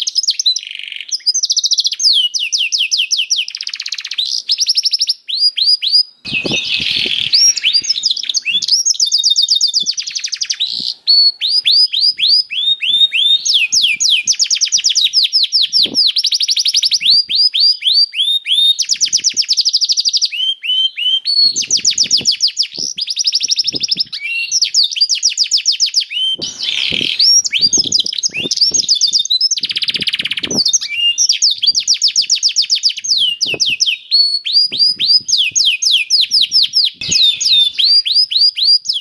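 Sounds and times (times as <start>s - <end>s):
canary singing trills: 0.0s - 39.0s.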